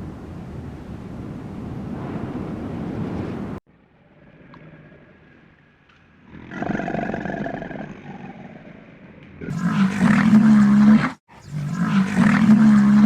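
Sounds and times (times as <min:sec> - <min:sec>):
loud animal call: 0:09.4 - 0:13.0.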